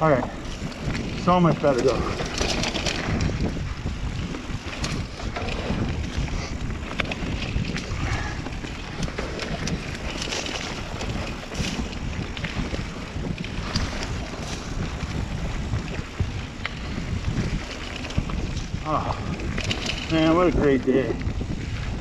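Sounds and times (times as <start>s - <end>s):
bike clicks and rattles: 0.0s - 21.9s
wind rushing over microphone: 0.0s - 22.0s
tyre noise on dirt: 1.9s - 4.3s, 10.1s - 12.3s.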